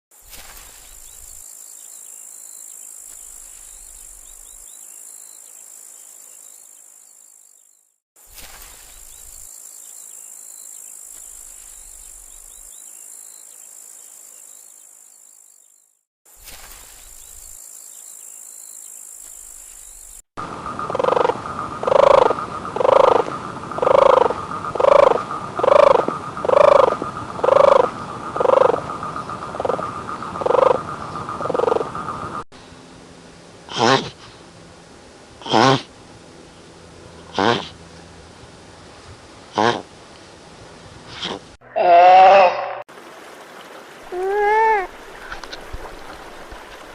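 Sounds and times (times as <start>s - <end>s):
insect buzzing hiss: 0.2s - 32.1s
loud animal call: 20.8s - 23.2s, 23.8s - 28.8s, 33.7s - 34.2s, 35.4s - 35.9s, 37.3s - 37.8s, 41.1s - 42.8s.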